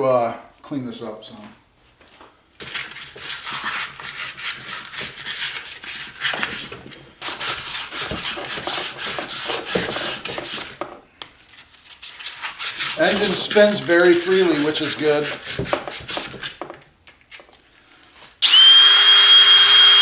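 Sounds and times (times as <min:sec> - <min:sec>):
file rubbing on metal: 0:12.3 - 0:16.6.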